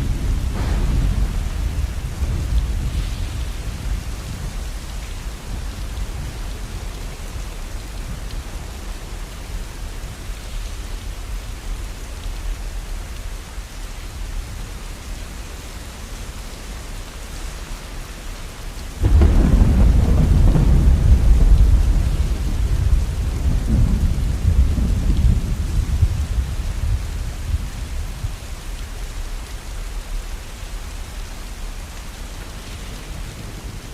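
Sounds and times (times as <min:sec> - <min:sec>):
deep thunder rumble: 0:00.0 - 0:09.1, 0:19.0 - 0:28.5
steady rain: 0:00.0 - 0:33.9.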